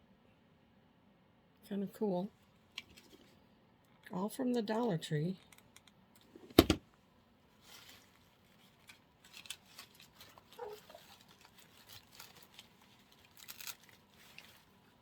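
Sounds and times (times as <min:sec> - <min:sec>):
faint rustling and ticks: 0:07.6 - 0:15.0.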